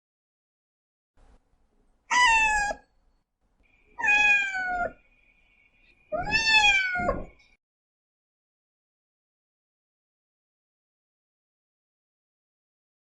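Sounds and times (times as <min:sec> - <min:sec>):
cat meowing: 0:02.1 - 0:02.9, 0:04.0 - 0:05.0, 0:06.1 - 0:07.4.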